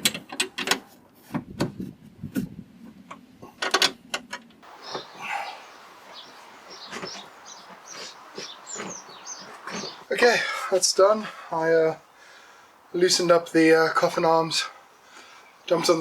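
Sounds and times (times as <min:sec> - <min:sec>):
faint high chirps: 0:04.6 - 0:10.1
steady hiss: 0:04.6 - 0:16.0.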